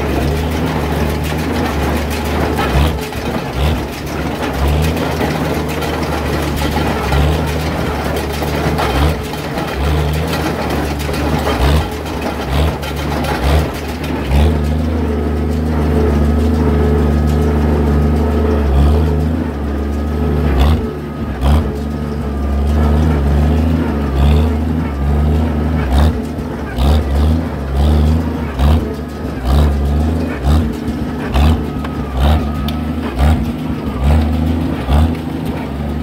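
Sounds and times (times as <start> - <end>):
sharp metal clanks: 0.0 - 36.0
tractor engine running: 0.0 - 36.0.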